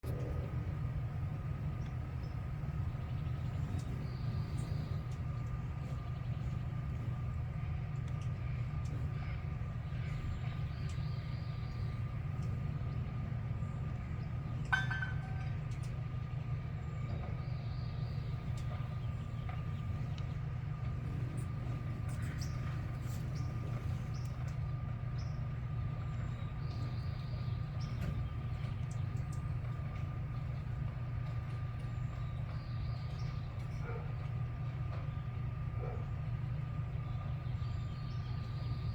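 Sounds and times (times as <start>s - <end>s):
low rumble: 0.0s - 15.7s
bird calls: 0.0s - 16.0s, 16.8s - 38.9s
thin constant tone: 14.6s - 15.6s.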